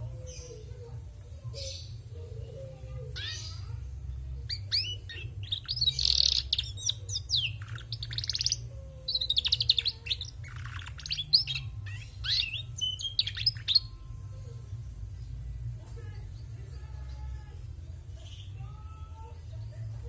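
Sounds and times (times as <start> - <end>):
canary singing: 0.0 - 15.6.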